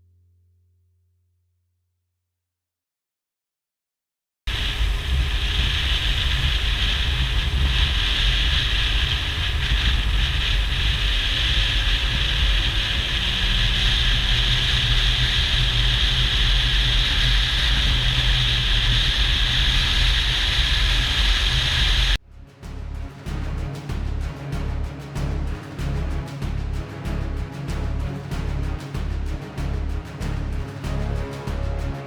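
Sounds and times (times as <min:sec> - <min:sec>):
wind buffeting microphone: 0:04.5 - 0:22.2.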